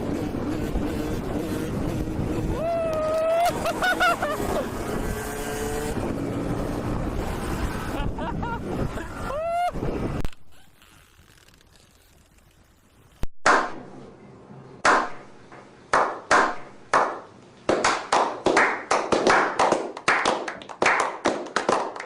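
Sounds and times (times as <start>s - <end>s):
sharp hand claps: 15.9s - 22.0s.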